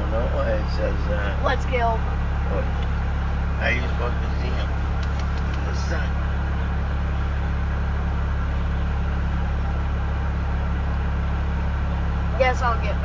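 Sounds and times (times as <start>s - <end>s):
engine idling drone: 0.0s - 13.0s.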